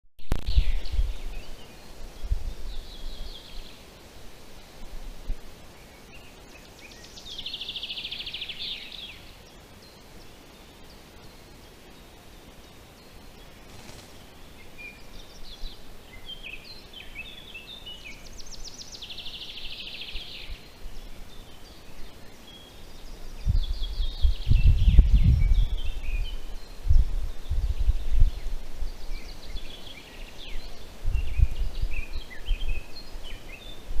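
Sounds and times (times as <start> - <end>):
low rumbling microphone bursts: 0.2 - 3.7, 23.1 - 29.7, 30.5 - 33.1
songbirds singing: 0.2 - 34.0.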